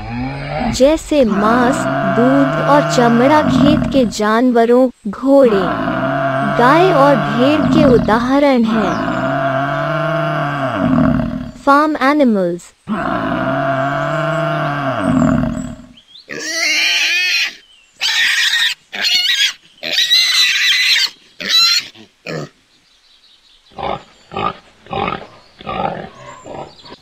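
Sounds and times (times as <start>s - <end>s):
pig squealing: 0.0s - 4.2s, 5.5s - 11.5s, 12.9s - 22.5s
water buffalo lowing: 0.0s - 4.2s, 5.4s - 11.6s, 12.9s - 16.9s
wild boar grunting: 0.0s - 4.2s, 5.4s - 11.6s, 12.9s - 16.7s, 23.7s - 27.0s.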